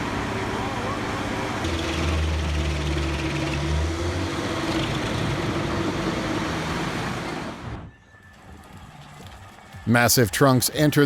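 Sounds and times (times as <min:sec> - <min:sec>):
wood chipper grinding logs: 0:01.5 - 0:07.6.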